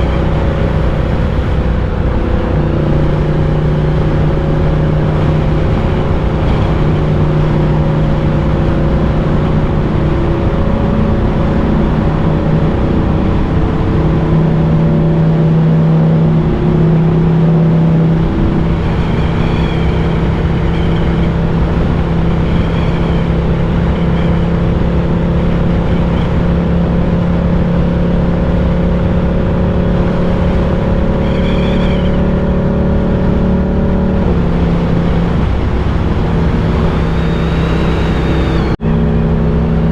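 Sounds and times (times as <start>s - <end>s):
motorcycle engine running: 0.0s - 12.8s, 28.7s - 39.0s
wind noise: 0.0s - 39.9s.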